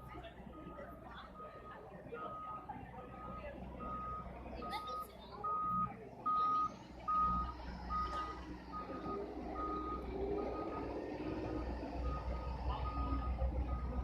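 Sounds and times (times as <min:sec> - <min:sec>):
truck engine rumble: 0:00.0 - 0:14.0.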